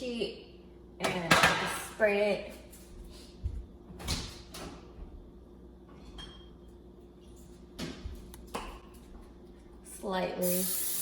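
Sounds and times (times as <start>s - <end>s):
kitchen knocks and clatters: 1.0s - 2.0s, 5.8s - 6.6s.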